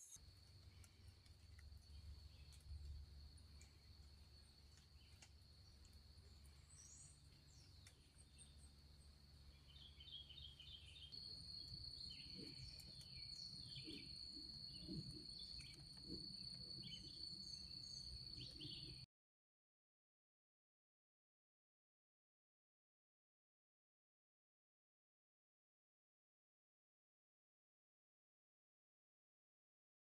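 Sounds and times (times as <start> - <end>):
faint chirps: 0.0 - 19.1.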